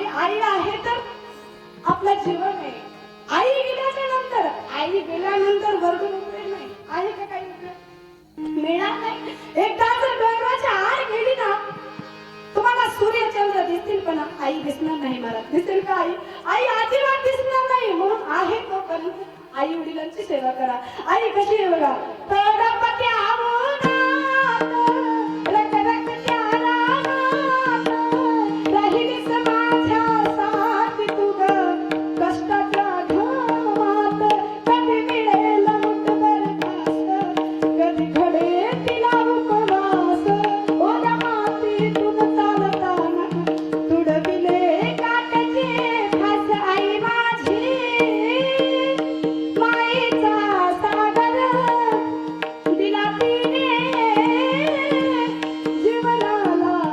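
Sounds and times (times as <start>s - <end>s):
tabla strokes: 21.0s - 56.9s.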